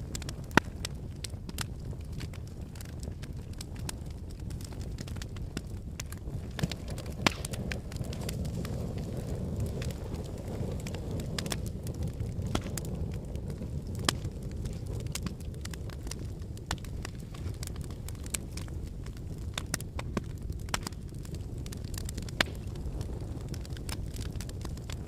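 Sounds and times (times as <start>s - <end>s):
fire crackling and popping: 0.0s - 25.0s
low rumble of flames: 0.0s - 25.0s.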